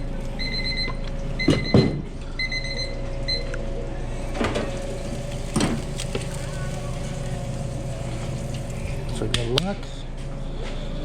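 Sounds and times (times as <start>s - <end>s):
kitchen equipment humming: 4.1s - 9.8s.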